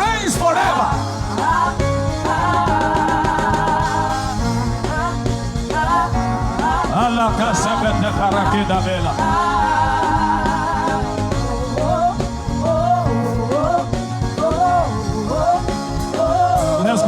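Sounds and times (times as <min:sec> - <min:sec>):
sustained instrumental backing: 0:00.0 - 0:17.0
person singing wordlessly: 0:04.5 - 0:17.0.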